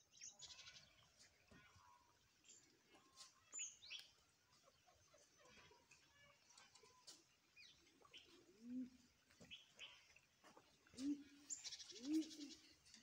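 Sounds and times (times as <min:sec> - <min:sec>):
small birds chirping: 0:00.0 - 0:13.0
dove cooing: 0:08.1 - 0:09.2, 0:10.8 - 0:13.0.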